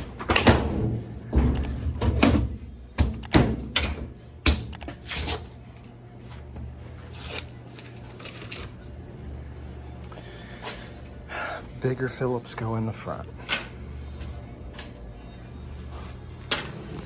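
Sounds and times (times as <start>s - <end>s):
tools and parts clattering: 0.0s - 5.5s
low steady hum: 0.0s - 17.0s.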